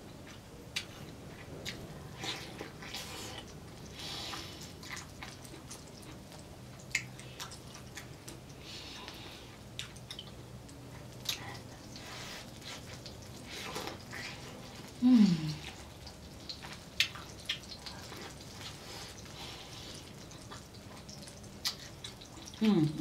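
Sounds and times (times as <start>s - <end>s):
person chewing corn wetly: 0.0s - 23.0s
person humming mmm: 15.0s - 15.8s, 22.6s - 23.0s.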